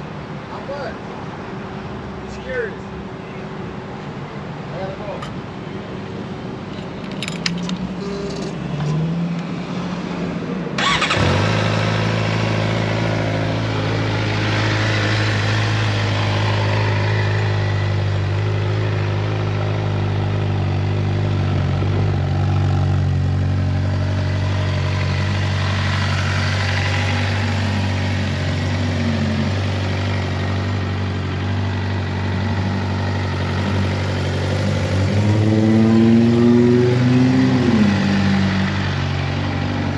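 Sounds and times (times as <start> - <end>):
motorcycle engine starting and idling: 10.8 - 13.2.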